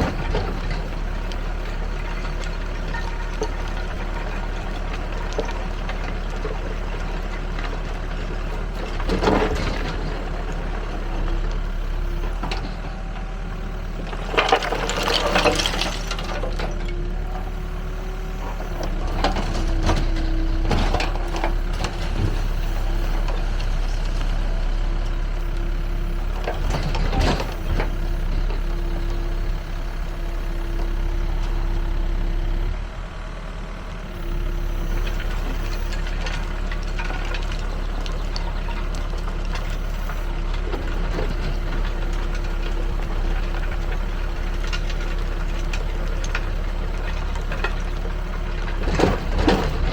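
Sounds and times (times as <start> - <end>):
backhoe engine running: 0.0 - 49.9
rubble rattling in bucket: 14.0 - 16.8.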